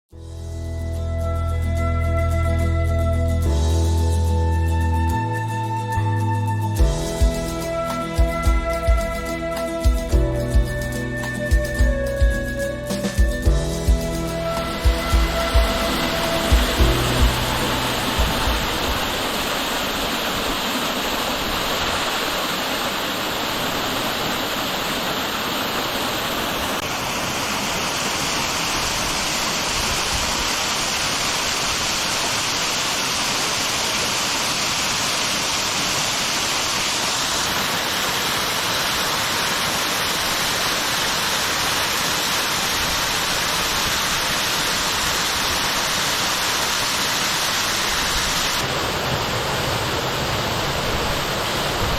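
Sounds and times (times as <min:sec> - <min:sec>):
waterfall rushing: 0:11.3 - 0:51.9.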